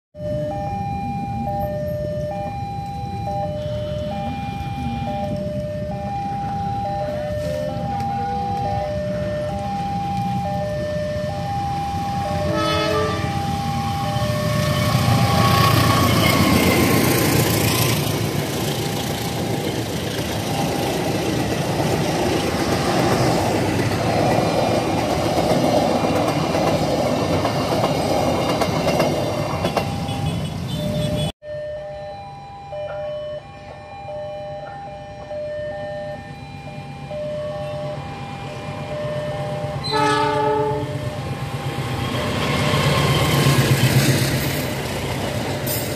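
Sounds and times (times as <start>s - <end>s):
diesel locomotive engine rumble: 0.2s - 31.3s, 32.5s - 45.9s
train horn blast: 12.4s - 13.5s, 39.8s - 41.1s.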